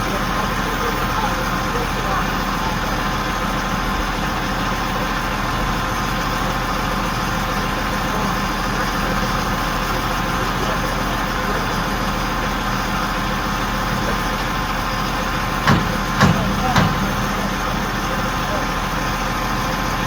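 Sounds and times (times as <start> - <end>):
crane engine running: 0.0 - 20.0.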